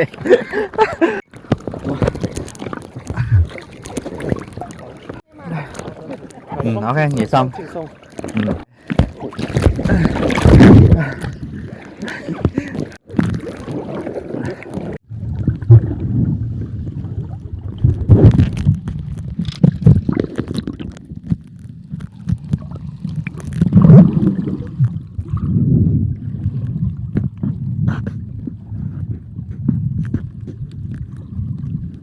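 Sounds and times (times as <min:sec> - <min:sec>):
water and boat noise: 0:00.0 - 0:32.0
wind buffeting microphone: 0:23.6 - 0:32.0.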